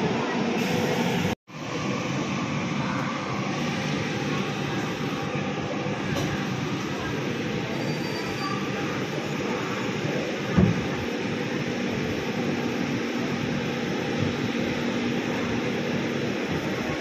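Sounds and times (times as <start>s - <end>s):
train wheels rumbling and hissing: 0.0s - 17.0s.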